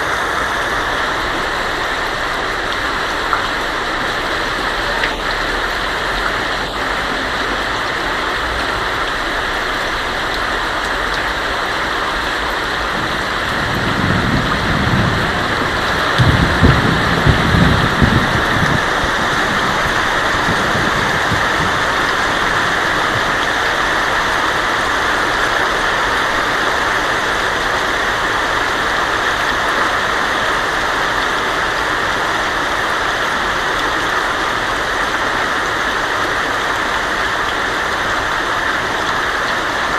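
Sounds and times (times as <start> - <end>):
thunder rumbling: 0.0 - 25.0
heavy rain on a tin roof: 0.0 - 39.9.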